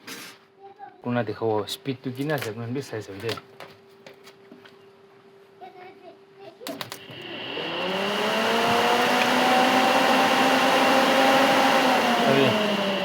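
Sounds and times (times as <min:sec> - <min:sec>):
electric fan clicks: 0:06.7 - 0:13.0
electric fan motor whine: 0:06.9 - 0:13.0.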